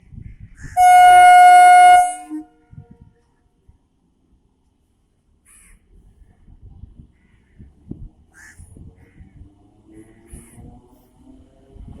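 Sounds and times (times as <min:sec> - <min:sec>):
train horn blast: 0:00.8 - 0:03.0.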